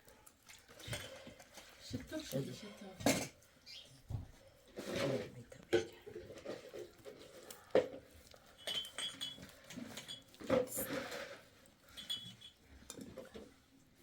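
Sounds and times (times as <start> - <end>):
utensils knocking and clinking: 8.6 - 10.9.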